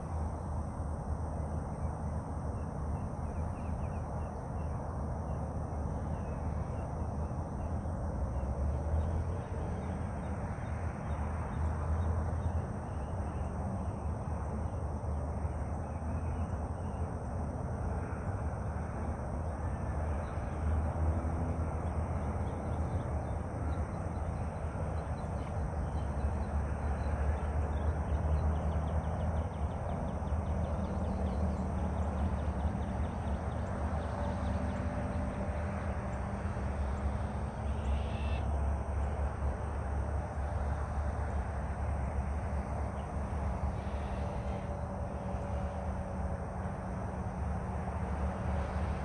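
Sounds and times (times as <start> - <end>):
faint bird calls: 37.7 - 38.5.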